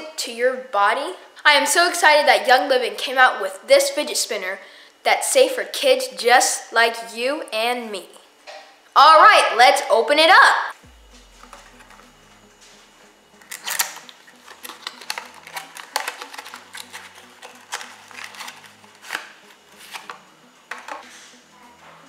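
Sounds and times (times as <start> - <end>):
packaging crinkling and clicking: 13.5 - 21.0.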